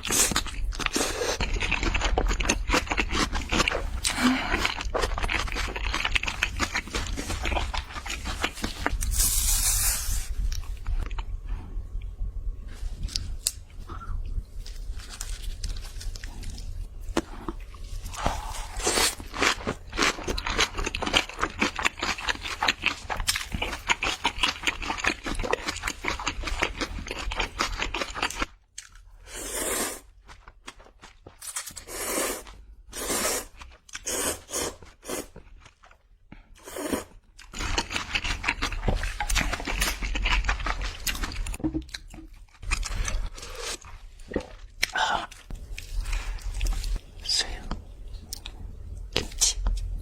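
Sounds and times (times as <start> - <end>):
crunchy food chewing: 0.0 - 9.1, 14.6 - 29.1, 33.3 - 47.0.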